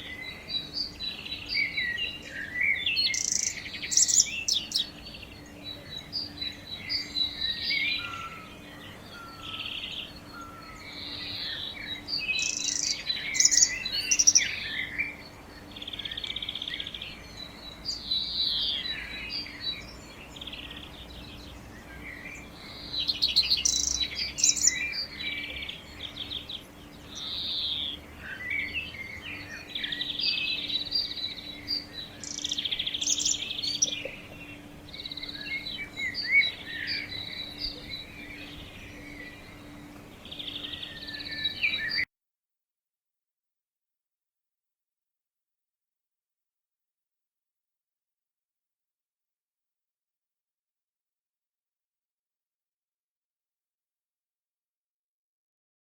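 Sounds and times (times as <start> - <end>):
birds singing and chirping: 0.0 - 42.1.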